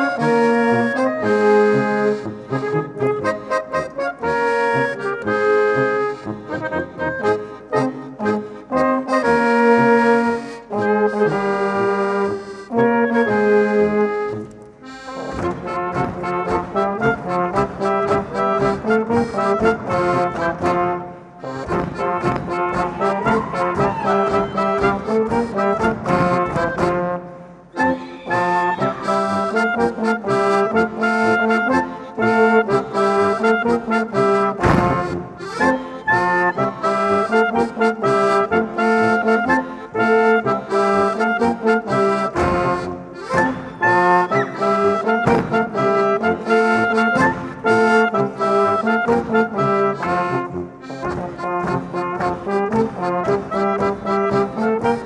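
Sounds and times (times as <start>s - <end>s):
folk music on brass and accordion: 0.0s - 55.0s.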